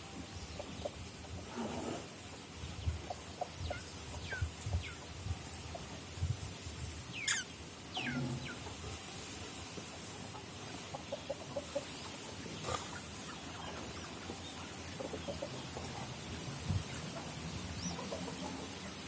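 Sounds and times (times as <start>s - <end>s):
animal chirping calls: 7.2s - 8.5s.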